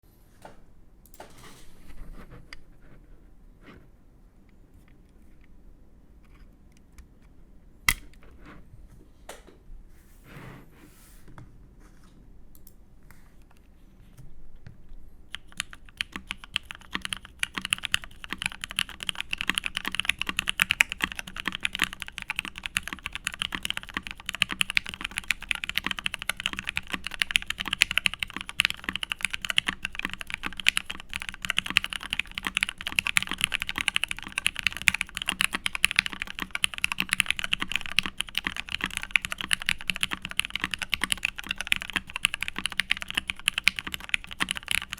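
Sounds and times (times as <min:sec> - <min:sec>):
mechanical keyboard typing: 0:15.3 - 0:44.9.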